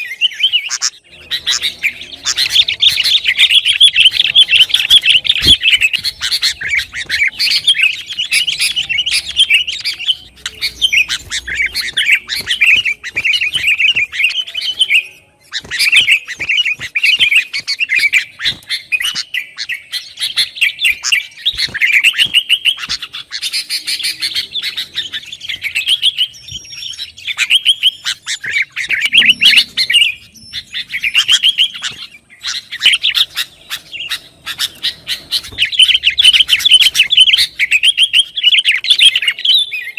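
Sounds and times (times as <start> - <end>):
bulbul chattering chirps: 0.0 - 39.9.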